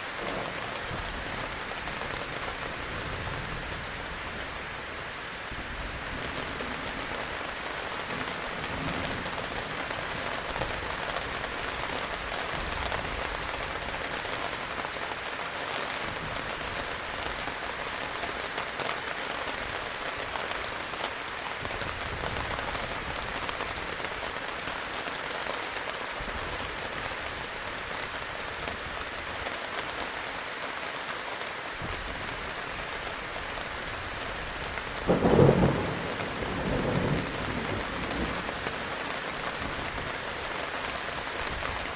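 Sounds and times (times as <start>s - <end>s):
heavy rain falling: 0.0s - 41.9s
thunder clap: 35.1s - 38.8s.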